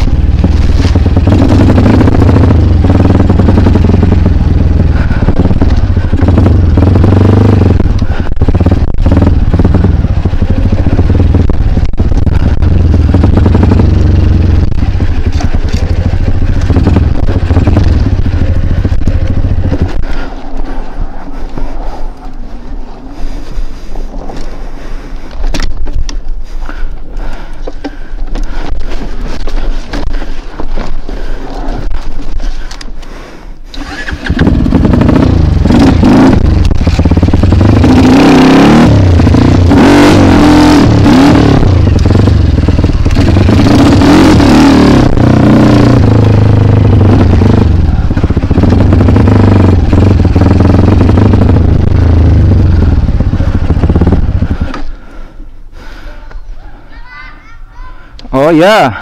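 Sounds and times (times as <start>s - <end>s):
motorbike engine revving: 0.0s - 20.7s, 33.7s - 55.3s.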